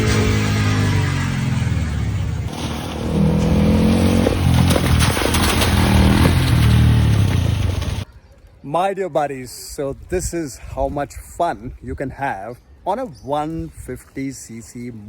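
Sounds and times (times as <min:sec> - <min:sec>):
dirt bike engine revving: 0:00.0 - 0:08.0
bike clattering over rough ground: 0:02.5 - 0:08.1.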